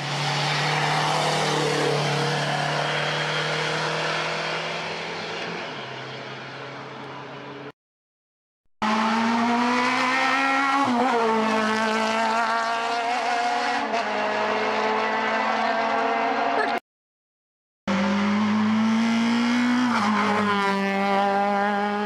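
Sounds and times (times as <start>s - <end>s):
car engine revving high: 8.8s - 16.8s, 17.9s - 22.0s.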